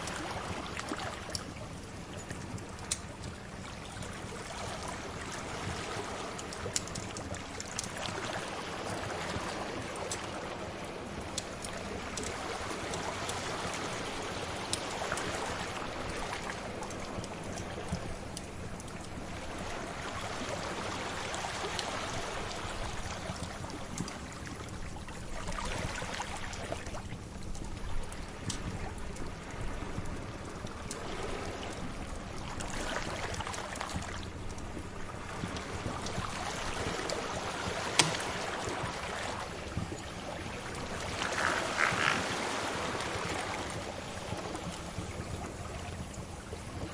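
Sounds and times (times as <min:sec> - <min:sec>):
sea waves washing in: 0:28.0 - 0:46.9.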